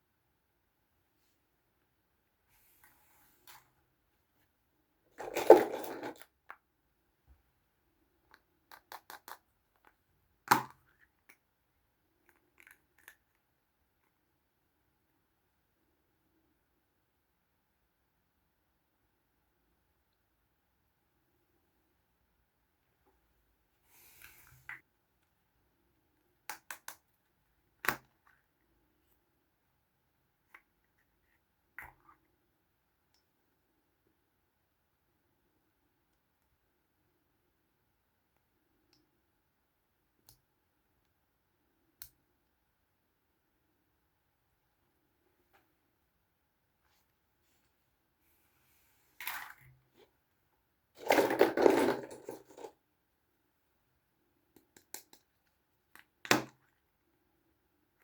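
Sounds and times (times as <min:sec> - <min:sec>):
plastic toys scraping rustle: 0:51.0 - 0:52.7.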